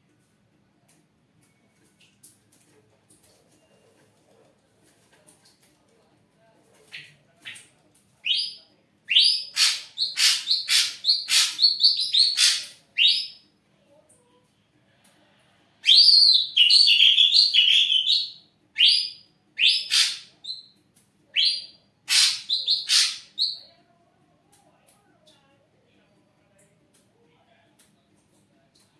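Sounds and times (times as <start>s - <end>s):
bird whistling and chattering: 9.1s - 13.4s, 15.8s - 20.7s, 21.4s - 23.6s.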